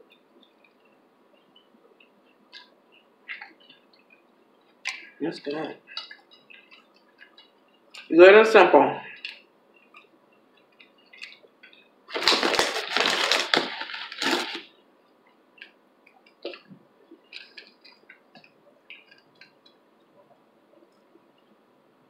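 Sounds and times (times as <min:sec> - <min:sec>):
chewing clicks and smacks: 0:00.1 - 0:05.1, 0:05.9 - 0:08.1, 0:09.2 - 0:11.9, 0:15.2 - 0:21.5
crunching chip being chewed: 0:09.2 - 0:14.7.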